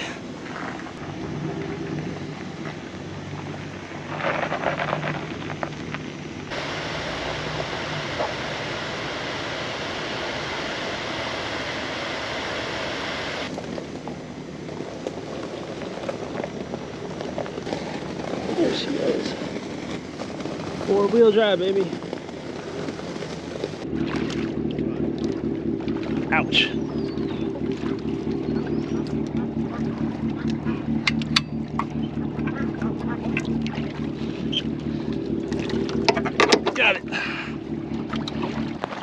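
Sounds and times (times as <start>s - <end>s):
vehicle engine running: 0.0s - 39.0s
loud even rushing noise: 6.5s - 13.5s.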